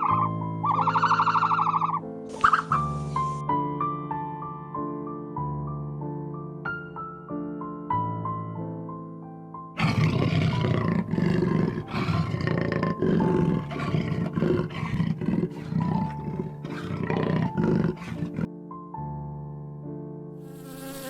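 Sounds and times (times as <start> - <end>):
large animal calling: 0.0 - 2.9, 9.8 - 18.5
soft piano music: 0.0 - 11.9, 12.7 - 21.0.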